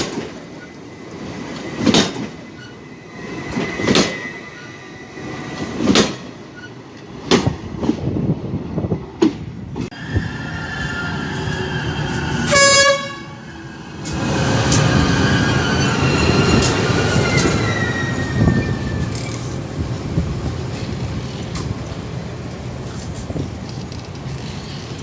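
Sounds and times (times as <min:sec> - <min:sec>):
train rumbling on rails: 0:00.0 - 0:25.0
train horn toot: 0:12.4 - 0:13.5.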